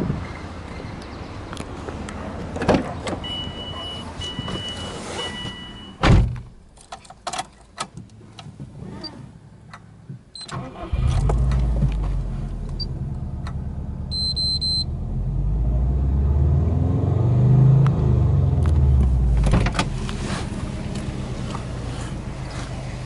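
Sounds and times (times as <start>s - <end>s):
short high beep: 14.1s - 14.9s
car engine revving: 14.9s - 23.0s.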